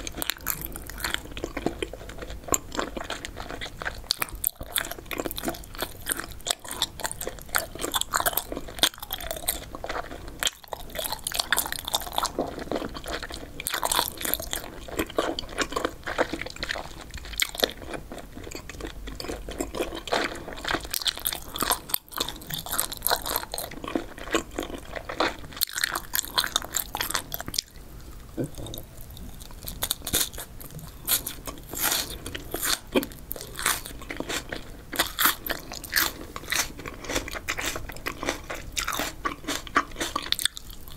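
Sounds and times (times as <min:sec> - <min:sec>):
close-miked crunching and chewing: 0:00.0 - 0:40.9.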